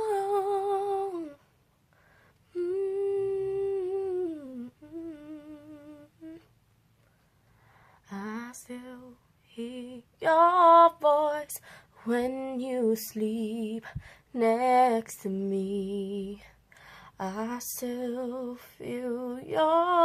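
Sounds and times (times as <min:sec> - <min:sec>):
woman humming: 0:02.5 - 0:06.5.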